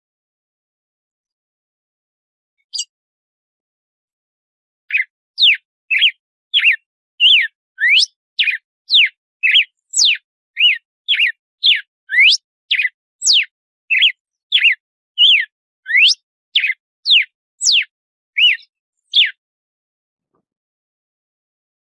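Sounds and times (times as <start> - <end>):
bird whistling song: 2.6 - 2.9, 4.9 - 19.4.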